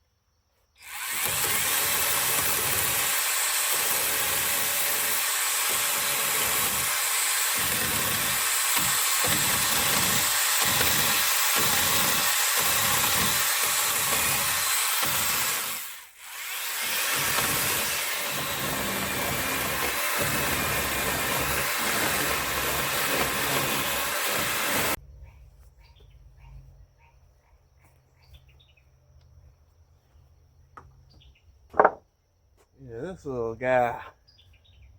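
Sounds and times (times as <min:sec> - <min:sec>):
angle grinder grinding wood: 0:00.8 - 0:25.0.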